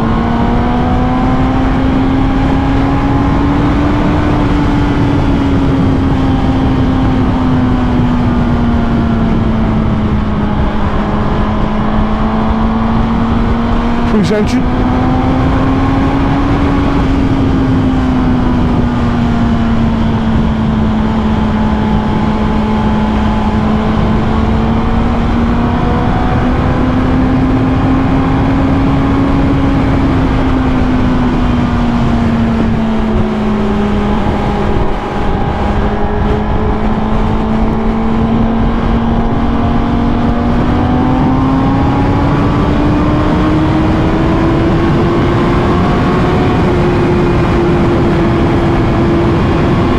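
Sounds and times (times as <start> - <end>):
motorcycle engine running: 0.0 - 49.9
rush of noise: 7.9 - 20.6, 31.0 - 49.9.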